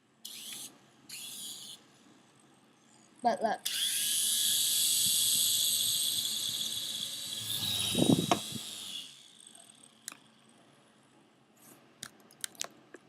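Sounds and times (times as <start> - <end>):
toy helicopter motor whining: 0.2 - 1.8, 3.6 - 10.5.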